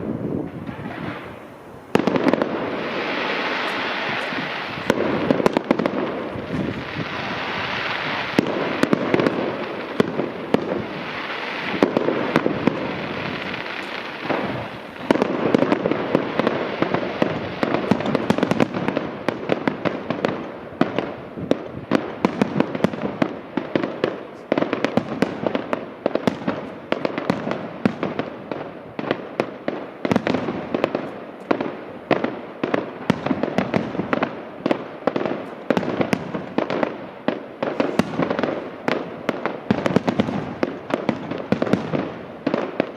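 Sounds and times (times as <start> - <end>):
fireworks crackling: 0.0 - 42.9
sharp firework bangs: 0.0 - 42.9.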